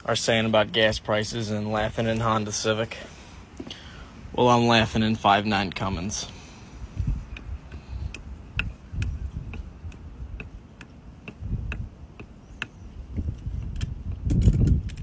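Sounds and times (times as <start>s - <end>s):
mechanical ticking: 7.3s - 12.8s.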